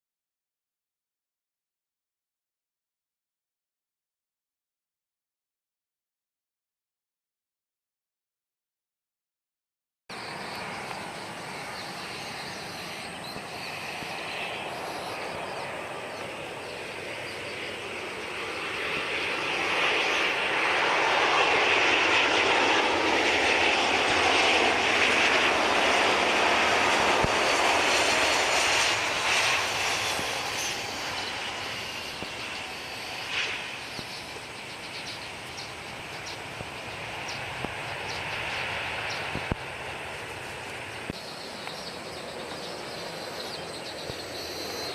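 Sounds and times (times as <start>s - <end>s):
jet airliner engine roar: 10.1s - 44.9s.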